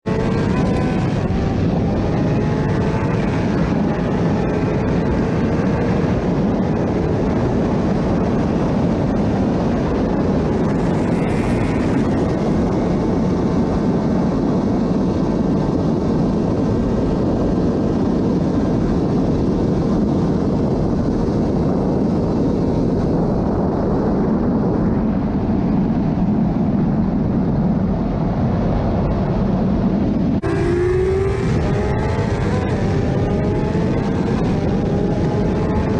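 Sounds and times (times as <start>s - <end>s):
motorcycle engine running: 0.0s - 19.0s, 30.4s - 35.9s
loud rush of wind: 0.0s - 35.9s.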